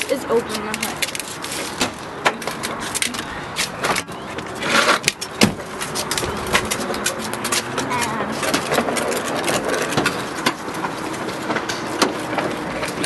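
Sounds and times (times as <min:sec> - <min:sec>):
car hood scraping: 0:03.6 - 0:07.9.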